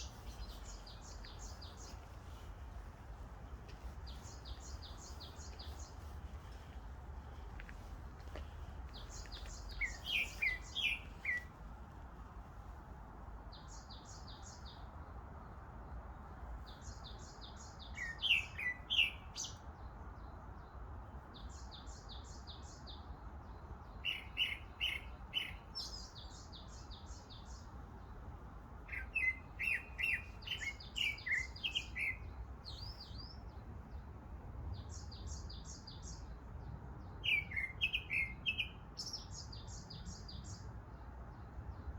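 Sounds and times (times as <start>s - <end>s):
faint background hiss: 0.0s - 41.9s
songbirds singing: 0.0s - 41.9s.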